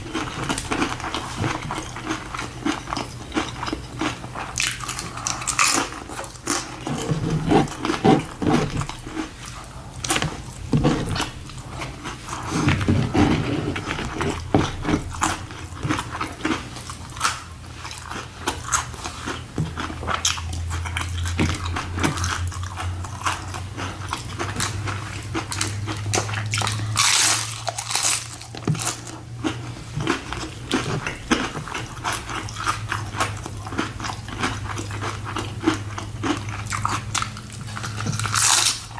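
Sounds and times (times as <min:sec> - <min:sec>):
wet chewing: 0:00.0 - 0:38.9
crunchy bites: 0:23.2 - 0:38.9.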